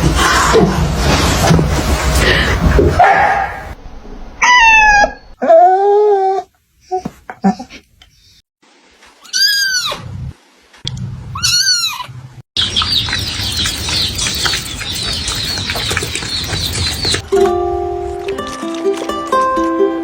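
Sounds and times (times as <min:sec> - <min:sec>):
many birds chirping: 0:12.6 - 0:17.2.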